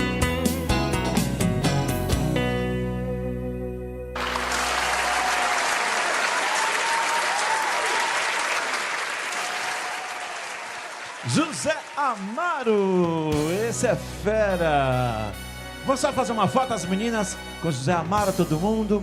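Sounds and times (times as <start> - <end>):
audience applause: 4.2 - 13.4.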